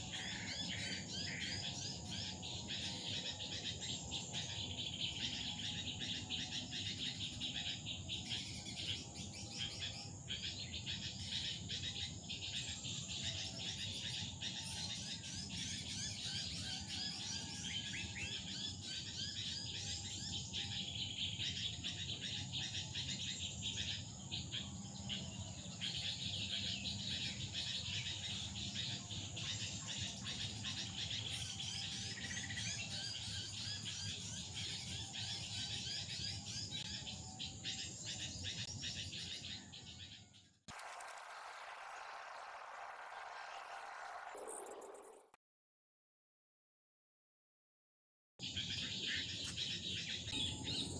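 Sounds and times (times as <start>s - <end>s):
small birds chirping: 0.0s - 45.3s, 48.4s - 50.9s
high-pitched insect drone: 40.7s - 45.3s.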